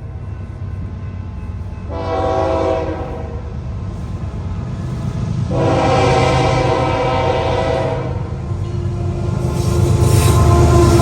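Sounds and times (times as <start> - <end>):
train engine rumble: 0.0 - 11.0
train horn blast: 1.9 - 3.4, 5.5 - 11.0.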